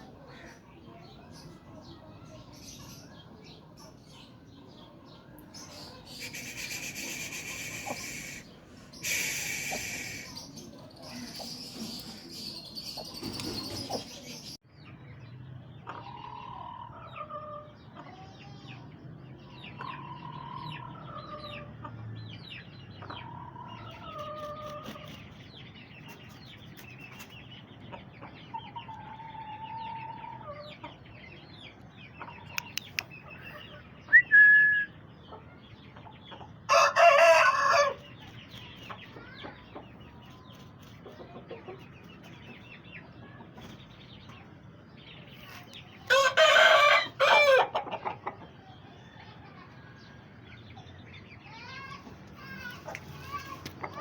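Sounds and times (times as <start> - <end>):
hens and chicks clucking: 0.0 - 14.6, 15.7 - 34.2, 35.0 - 54.0
rooster crowing: 36.7 - 38.0, 46.1 - 47.7.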